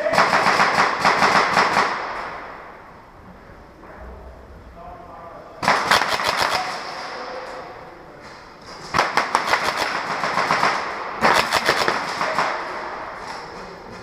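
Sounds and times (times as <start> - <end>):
airsoft gun bursts: 5.6 - 7.2, 8.9 - 12.9.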